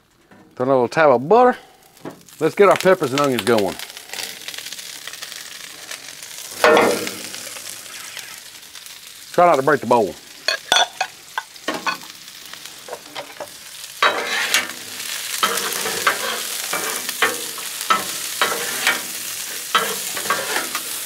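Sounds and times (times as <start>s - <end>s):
vegetables sizzling on a griddle: 1.6s - 21.0s
clinks: 10.5s - 12.1s
metal spatulas clacking and scraping: 14.0s - 14.7s, 15.4s - 19.1s, 19.7s - 20.9s.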